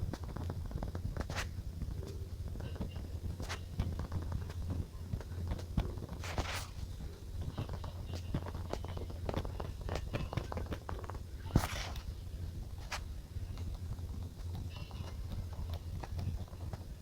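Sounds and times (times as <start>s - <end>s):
low steady hum: 0.0s - 17.0s
paper rustle: 1.2s - 1.6s, 6.1s - 8.8s, 9.9s - 12.1s.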